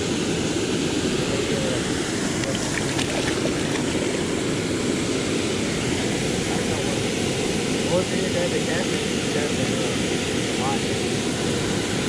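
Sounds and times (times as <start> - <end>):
waterfall rushing: 1.8 - 6.7.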